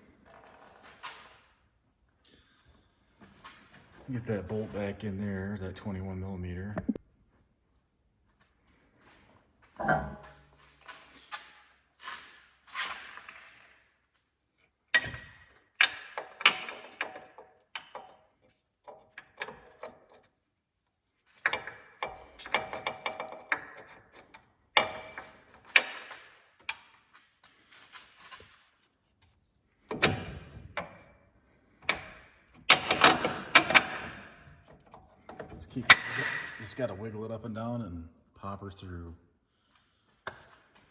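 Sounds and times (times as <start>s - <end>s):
metal clanks and clinks: 9.8s - 11.1s, 31.8s - 36.8s.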